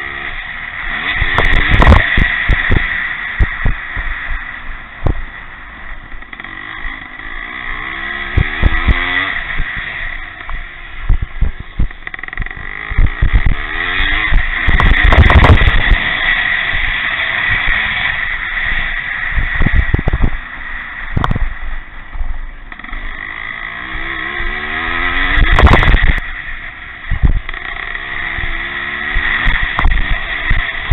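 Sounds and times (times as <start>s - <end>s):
motorcycles revving past: 0.0s - 4.7s, 5.8s - 21.6s, 22.7s - 30.9s
low rumble: 0.0s - 30.9s
short thumps: 5.0s - 5.3s, 10.4s - 12.4s, 21.2s - 21.6s.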